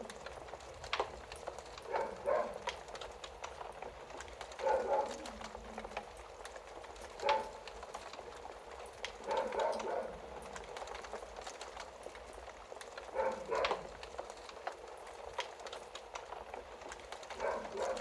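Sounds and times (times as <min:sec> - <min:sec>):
fire crackling in fireplace: 0:00.0 - 0:18.0.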